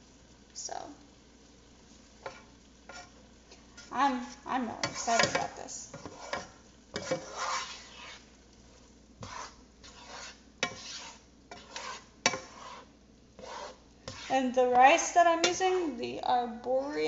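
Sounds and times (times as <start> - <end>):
utensil scraping through rice: 1.9 - 4.0, 4.8 - 14.8.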